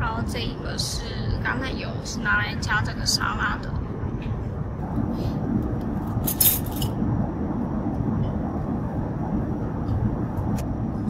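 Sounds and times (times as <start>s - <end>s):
airplane cabin drone: 0.0s - 11.0s
tableware clinking: 6.2s - 6.9s.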